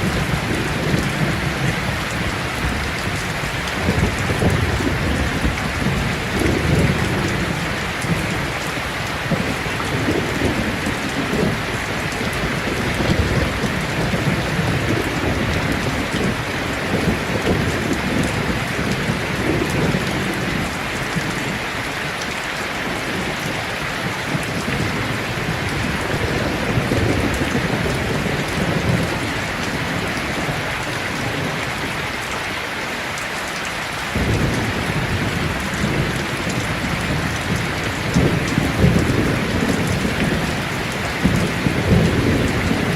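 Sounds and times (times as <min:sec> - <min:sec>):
rolling thunder: 0:00.0 - 0:08.6, 0:24.3 - 0:31.7, 0:34.1 - 0:42.9
heavy rain on a tin roof: 0:00.0 - 0:42.9.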